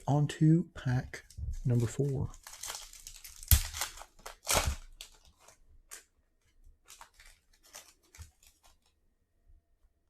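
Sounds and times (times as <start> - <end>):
cards rustling: 1.2 - 9.0
card pack wrapper tearing: 1.7 - 6.1, 6.8 - 8.9.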